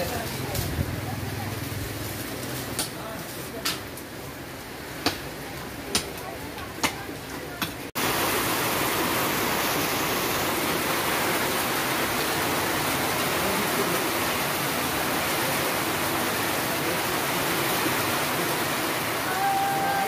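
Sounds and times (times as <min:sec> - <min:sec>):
heavy rain on wet road: 0:08.0 - 0:20.0.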